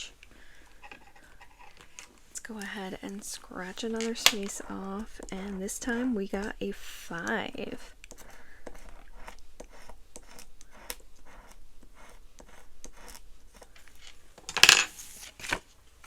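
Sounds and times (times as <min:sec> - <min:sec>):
paper rustling: 0:14.8 - 0:15.8.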